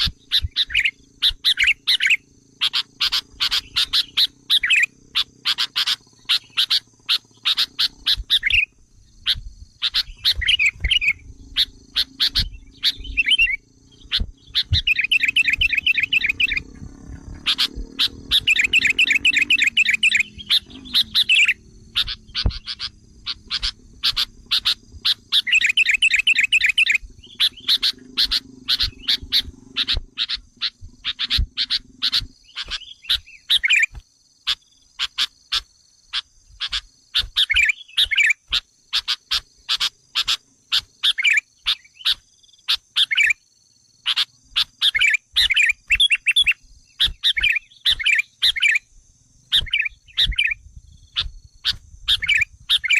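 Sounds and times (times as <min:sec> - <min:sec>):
steady high hum: 0:00.0 - 0:34.0
bird chips and chattering: 0:00.0 - 0:43.4, 0:44.1 - 0:48.8, 0:49.5 - 0:52.9
low drone: 0:10.7 - 0:32.4.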